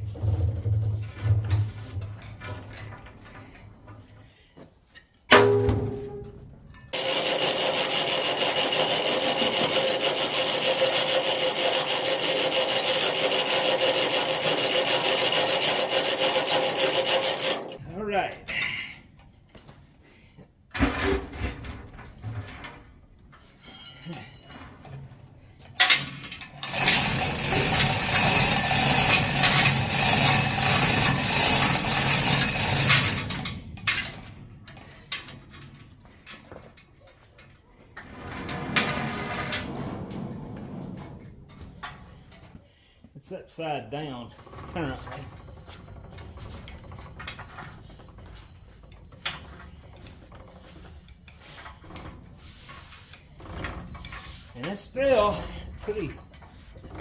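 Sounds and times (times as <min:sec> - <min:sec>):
electric motor humming and rattling: 0:07.0 - 0:17.8, 0:26.6 - 0:34.0.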